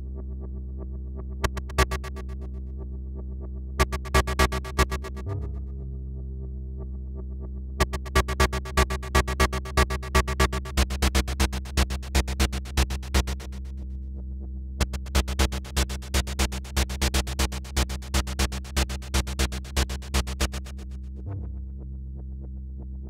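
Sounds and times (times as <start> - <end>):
steady low synth tone: 0.0 - 23.0
synthesizer clicky notes: 1.4 - 2.5, 3.8 - 5.5, 7.8 - 13.6, 14.8 - 20.7.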